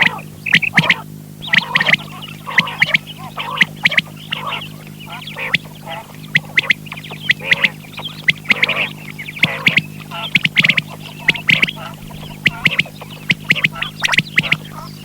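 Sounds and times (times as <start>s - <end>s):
low electrical hum: 0.0s - 15.0s
quail calling: 0.0s - 15.0s.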